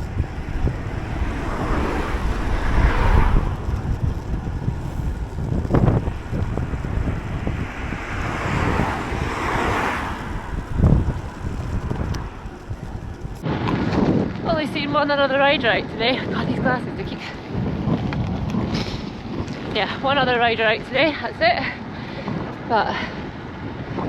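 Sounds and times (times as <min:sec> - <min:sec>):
cars passing: 0:00.0 - 0:13.4
bicycle thuds on road: 0:00.0 - 0:14.2
wind buffeting microphone: 0:00.0 - 0:24.0.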